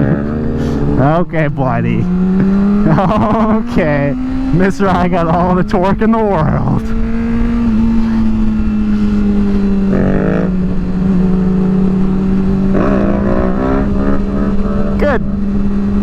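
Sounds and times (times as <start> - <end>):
motorcycle engine cruising: 0.0 - 16.0
wind rushing over microphone: 3.5 - 16.0.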